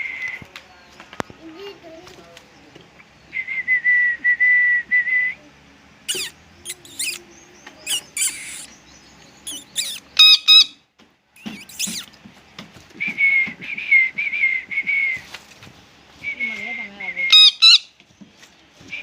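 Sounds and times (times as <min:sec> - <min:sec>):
parrots whistling and calling: 0:06.1 - 0:10.8, 0:11.4 - 0:12.1, 0:16.3 - 0:18.0.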